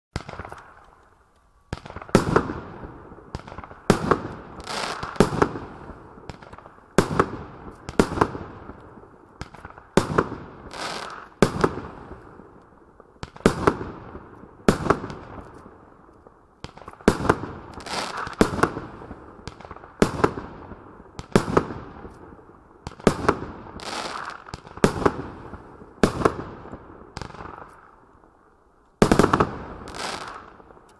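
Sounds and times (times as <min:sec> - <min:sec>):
firework bangs: 0:00.2 - 0:00.9, 0:01.7 - 0:12.6, 0:13.2 - 0:15.9, 0:16.6 - 0:28.0, 0:29.0 - 0:30.9.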